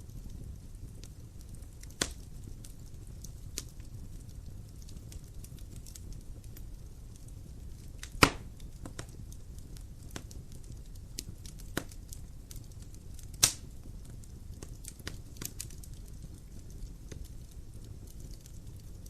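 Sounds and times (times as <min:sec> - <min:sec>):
firewood crackling: 0:00.0 - 0:19.0
low rumble of flames: 0:00.0 - 0:19.0
loud sharp pops: 0:08.0 - 0:08.5.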